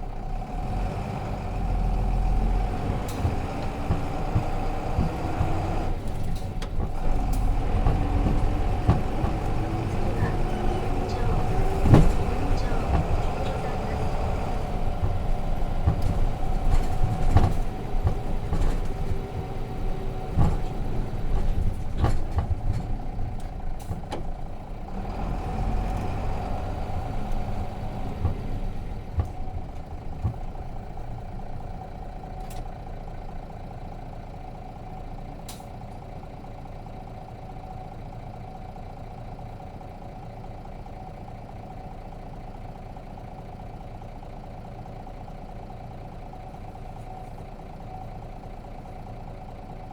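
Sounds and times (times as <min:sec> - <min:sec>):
diesel bus engine: 0:00.0 - 0:49.9
rattles and knocks: 0:02.0 - 0:32.8.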